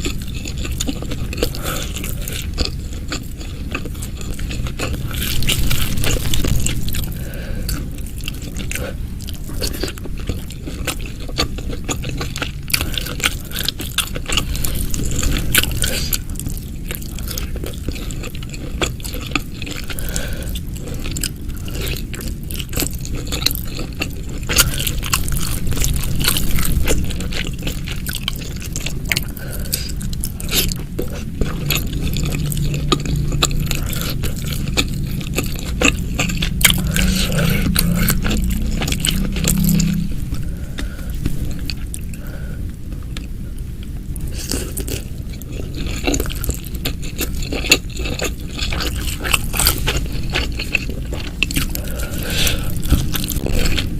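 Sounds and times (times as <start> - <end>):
chewing and biting food: 0.0 - 53.9.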